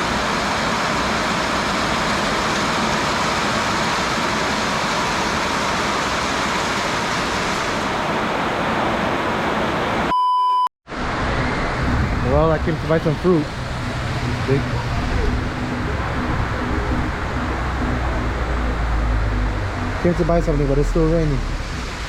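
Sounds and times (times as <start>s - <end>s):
heavy rain pouring down: 0.0s - 10.0s, 10.9s - 22.0s
brief electronic tone: 10.1s - 10.7s.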